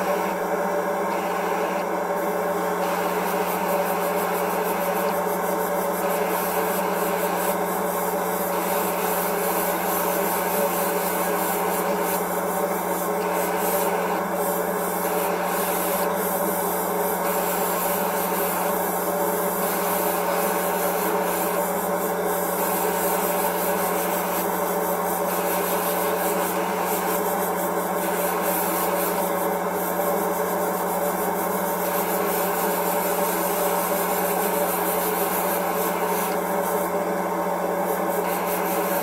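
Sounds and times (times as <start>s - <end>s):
steady hum: 0.0s - 29.8s
sanding on plastic: 2.8s - 37.0s, 37.7s - 39.0s.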